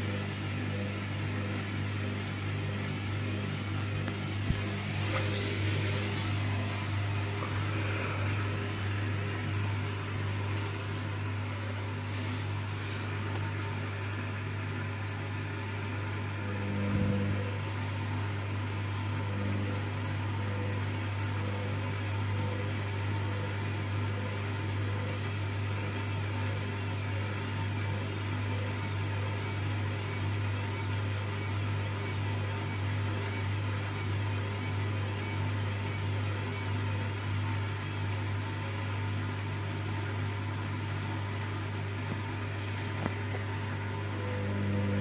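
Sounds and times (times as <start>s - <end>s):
washing machine motor humming: 0.0s - 45.0s.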